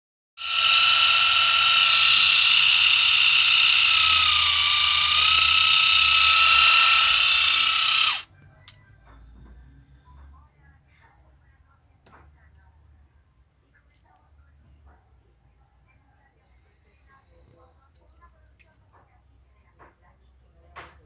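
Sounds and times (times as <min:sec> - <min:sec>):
small electric motor whining: 0:00.4 - 0:08.2.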